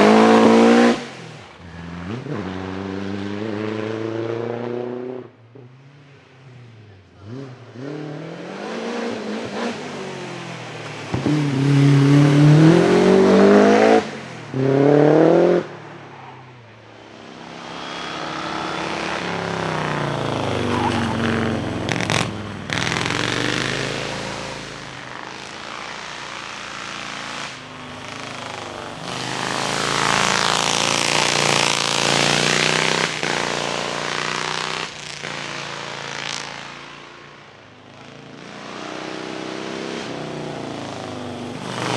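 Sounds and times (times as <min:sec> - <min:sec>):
racing car engines revving: 0:00.0 - 0:41.9.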